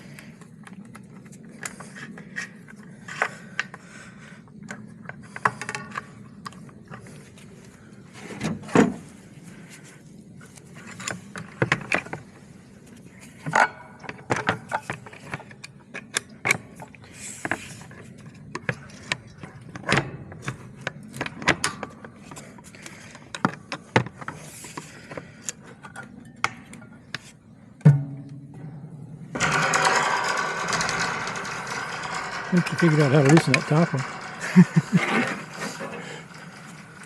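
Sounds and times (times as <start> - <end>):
tools clicking and clanking: 29.3 - 37.0.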